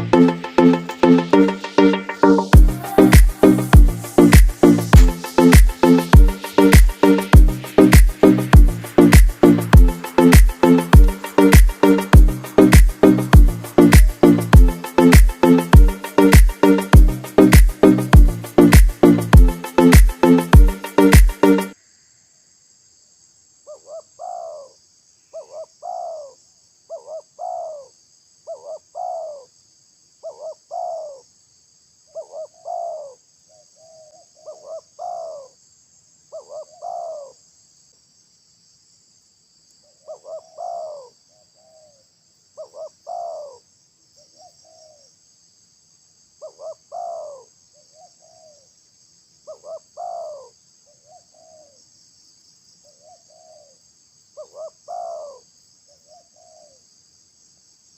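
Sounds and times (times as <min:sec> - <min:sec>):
high insect buzz: 0:02.5 - 0:21.7
dove cooing: 0:40.1 - 0:42.0, 0:42.6 - 0:43.6, 0:46.4 - 0:47.4, 0:54.4 - 0:55.4.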